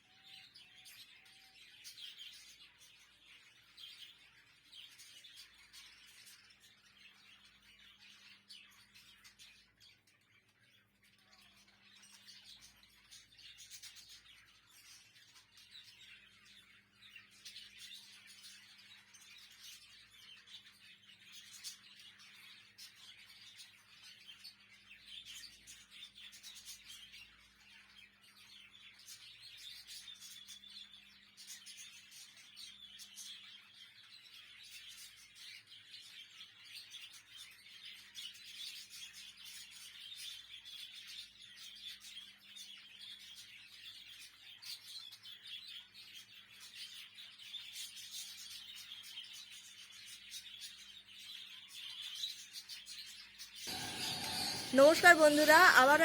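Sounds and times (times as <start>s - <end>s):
budgerigars chirping: 53.7s - 56.0s.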